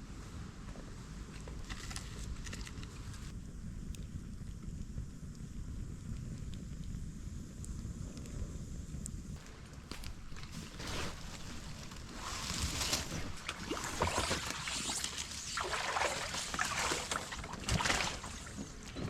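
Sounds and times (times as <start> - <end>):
water sloshing and splashing: 9.4 - 19.0.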